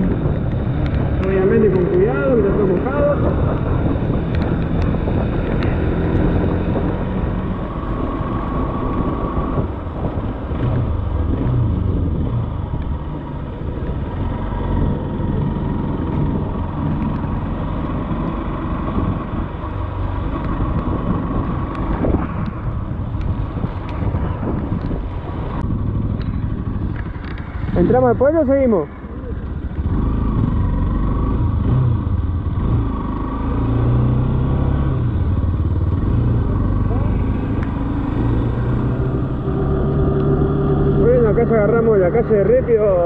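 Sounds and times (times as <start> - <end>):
wind on microphone: 0.0 - 28.2
motorcycle engine: 0.0 - 43.0.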